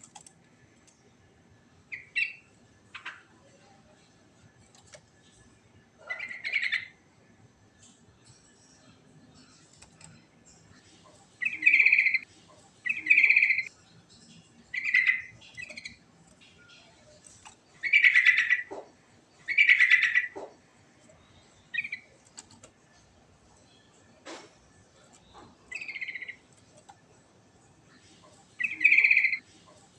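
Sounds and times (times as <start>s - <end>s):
bird singing trilled phrases: 12.8s - 13.7s, 14.7s - 16.0s, 25.7s - 26.4s, 28.6s - 29.4s.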